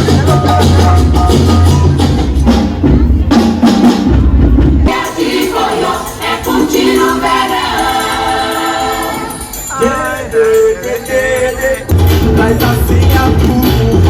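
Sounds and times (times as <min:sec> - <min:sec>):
singing over held notes: 0:04.9 - 0:14.0
music with heavy bass beat: 0:11.9 - 0:14.0.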